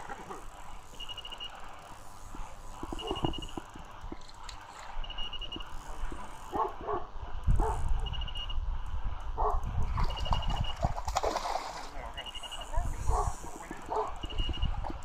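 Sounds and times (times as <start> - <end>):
dog barking and yipping: 6.5 - 7.7.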